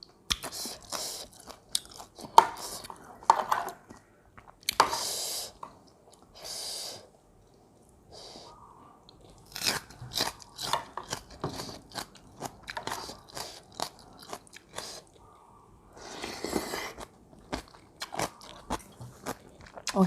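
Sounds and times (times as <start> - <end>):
chewing crunchy food: 0.0 - 4.9, 9.0 - 15.4, 16.0 - 20.0.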